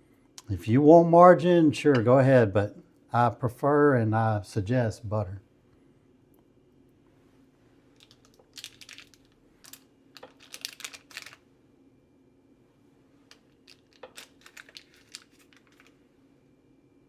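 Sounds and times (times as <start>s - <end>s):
faint steady hum: 0.0s - 17.0s
butter wrapper crinkling: 8.0s - 11.5s, 13.3s - 16.0s.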